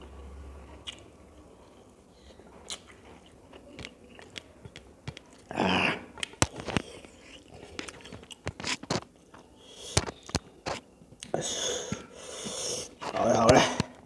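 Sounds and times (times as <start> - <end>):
person chewing food: 0.8 - 13.2.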